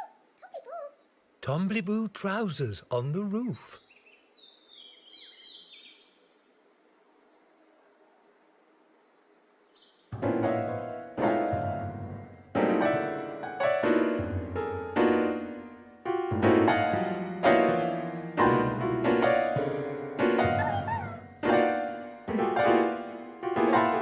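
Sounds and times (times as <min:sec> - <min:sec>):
slow sad piano music: 0:10.2 - 0:24.0.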